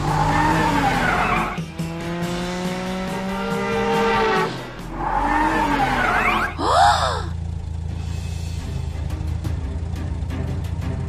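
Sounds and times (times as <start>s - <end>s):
tires squealing: 0.0s - 2.0s, 3.1s - 7.9s
background music: 0.0s - 7.3s, 8.0s - 11.0s
rising engine-like whine: 0.0s - 11.0s.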